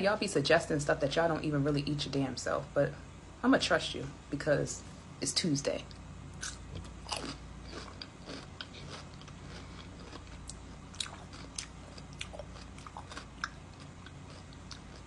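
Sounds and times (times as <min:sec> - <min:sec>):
person chewing pickle: 0:06.4 - 0:15.0.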